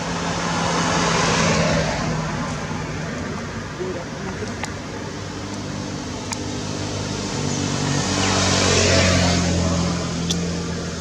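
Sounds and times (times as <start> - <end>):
vehicle engine passing by: 0.0 - 3.7, 6.5 - 11.0.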